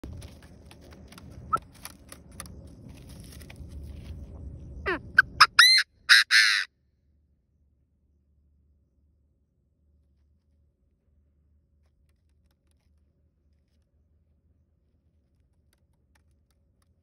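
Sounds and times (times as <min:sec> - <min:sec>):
francolin calling: 0:04.9 - 0:06.7.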